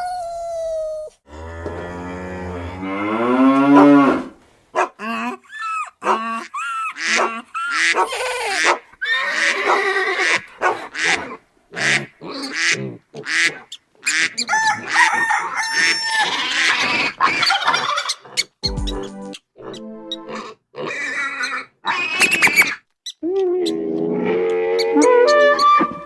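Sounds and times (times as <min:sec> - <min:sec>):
farm animal calls: 0:03.6 - 0:18.6, 0:19.3 - 0:26.0
fowl calls: 0:11.8 - 0:18.3.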